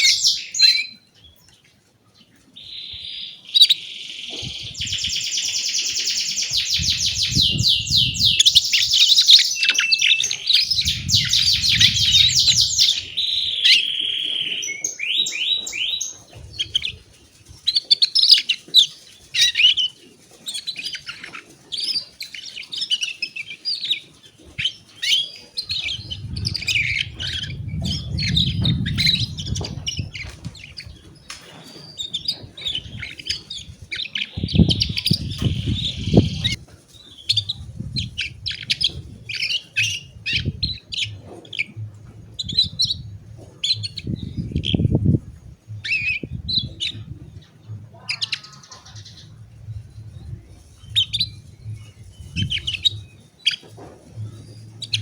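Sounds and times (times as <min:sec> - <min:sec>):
canary singing: 0:00.0 - 0:01.5, 0:02.2 - 0:55.0
low rumble: 0:10.7 - 0:13.5, 0:25.8 - 0:31.0, 0:40.0 - 0:48.1, 0:48.9 - 0:53.2.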